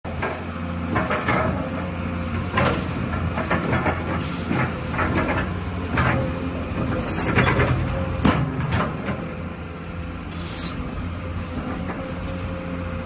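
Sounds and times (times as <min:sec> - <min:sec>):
metallic clanks and knocks: 0:00.1 - 0:09.5
excavator diesel engine running: 0:00.1 - 0:13.0.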